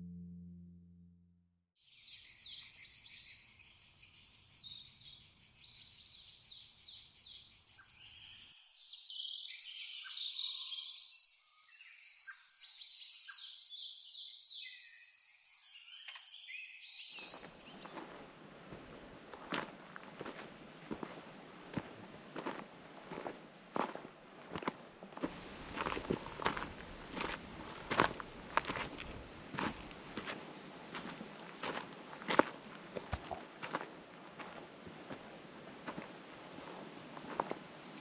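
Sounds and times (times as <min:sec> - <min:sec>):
guitar music: 0:00.0 - 0:01.5
high repeated bird chirp: 0:01.9 - 0:18.0
bird calls: 0:02.0 - 0:18.0.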